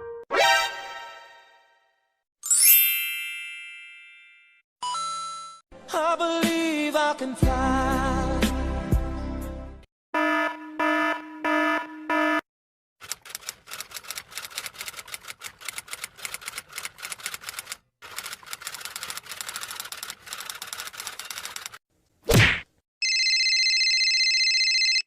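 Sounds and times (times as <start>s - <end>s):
rapid typing clicks: 13.0s - 21.8s.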